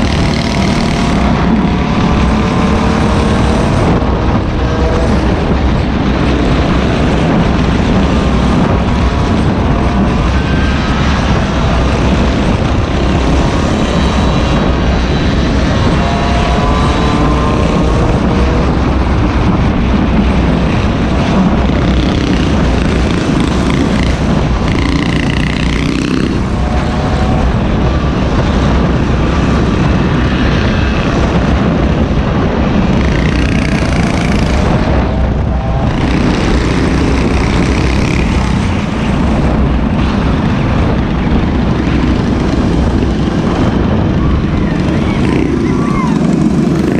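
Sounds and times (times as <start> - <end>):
small gas engine buzzing: 0.0 - 46.9
wind rumble on microphone: 0.0 - 46.9.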